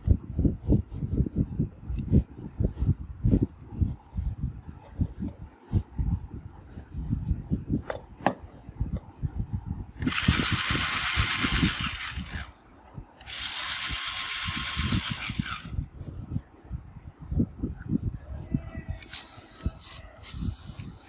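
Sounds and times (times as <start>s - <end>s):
toy electric motor whirring: 10.0s - 12.6s, 13.2s - 15.8s, 19.0s - 21.0s.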